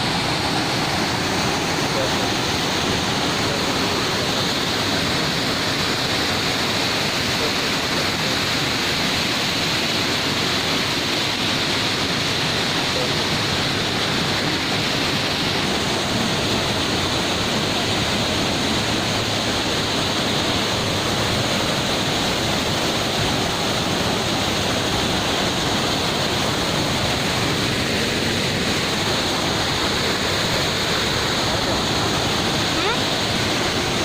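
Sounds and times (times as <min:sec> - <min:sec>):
waterfall roaring: 0:00.0 - 0:34.0.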